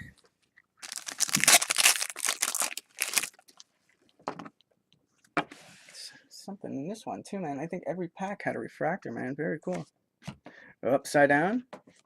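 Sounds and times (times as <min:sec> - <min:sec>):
foil wrapper tearing and crinkling: 0:00.8 - 0:03.6.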